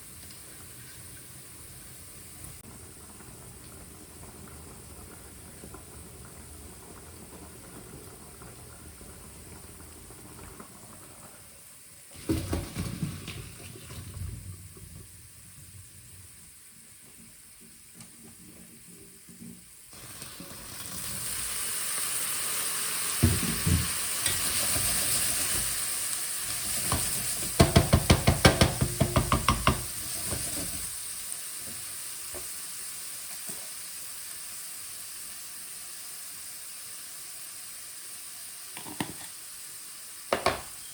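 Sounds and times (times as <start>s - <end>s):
food sizzling in a pan: 0.0s - 13.0s, 18.7s - 40.9s
utensils knocking and scraping a pan: 26.6s - 30.8s, 40.3s - 40.7s.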